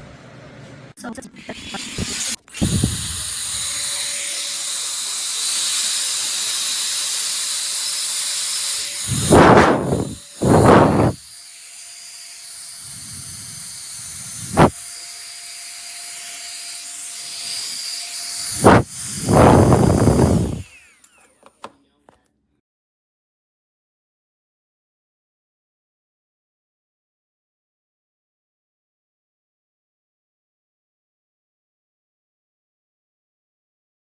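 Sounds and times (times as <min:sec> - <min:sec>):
small fan running: 0:01.6 - 0:11.4, 0:12.8 - 0:21.5
bursts of blowing: 0:09.0 - 0:11.2, 0:14.3 - 0:14.7, 0:18.5 - 0:20.6.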